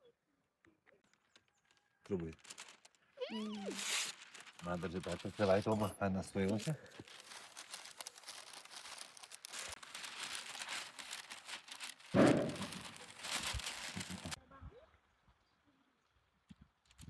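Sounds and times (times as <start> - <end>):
wrapping crinkling and rustling: 1.0 - 14.4
thump: 12.2 - 12.7.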